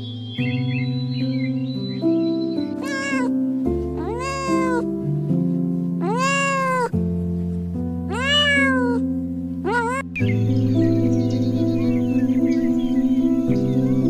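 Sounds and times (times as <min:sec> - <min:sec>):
soft piano music: 0:00.0 - 0:14.0
cat meowing: 0:02.8 - 0:04.9, 0:06.0 - 0:07.0, 0:08.0 - 0:10.2.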